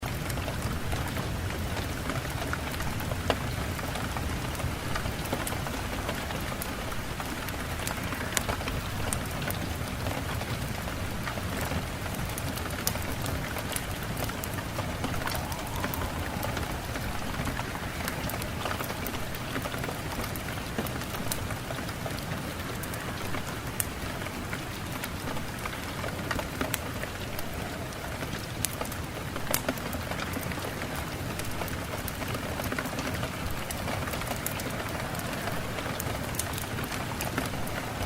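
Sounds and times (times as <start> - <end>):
rain hiss: 0.0 - 38.0
raindrops ticking on hard surface: 0.0 - 38.0.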